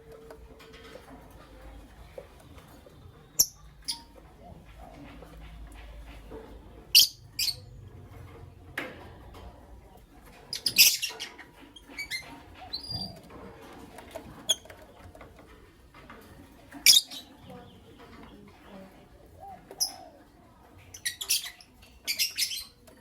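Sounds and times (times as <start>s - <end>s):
lovebirds chirping: 1.4s - 5.0s, 5.8s - 7.8s, 20.8s - 23.0s.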